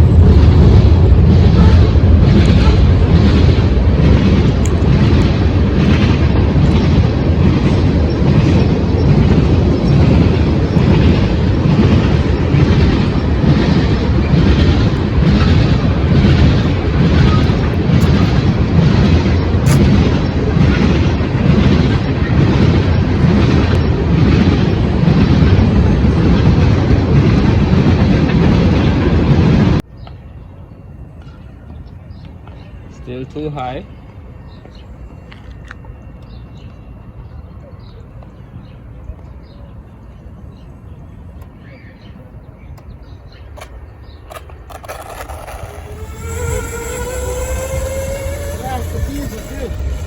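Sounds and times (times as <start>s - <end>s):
wind buffeting microphone: 0.0s - 29.8s, 42.2s - 50.0s.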